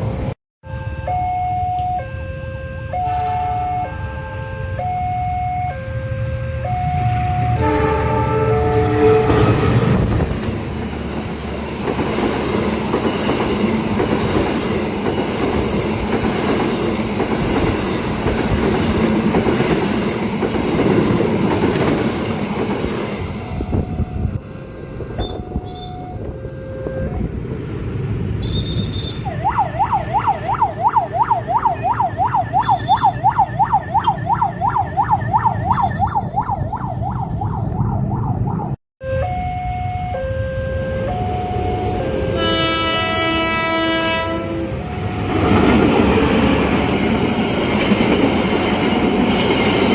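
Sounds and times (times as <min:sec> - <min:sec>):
train passing: 0:00.0 - 0:49.9
level crossing alarm warbling: 0:00.7 - 0:09.6, 0:29.2 - 0:42.6.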